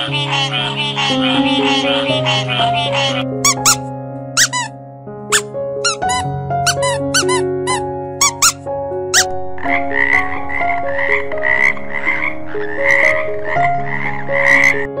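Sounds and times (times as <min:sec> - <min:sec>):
frog croaking: 0:00.0 - 0:03.8, 0:05.3 - 0:08.6, 0:09.2 - 0:14.9
short squeaks: 0:03.5 - 0:03.8, 0:04.4 - 0:04.7, 0:05.3 - 0:08.6.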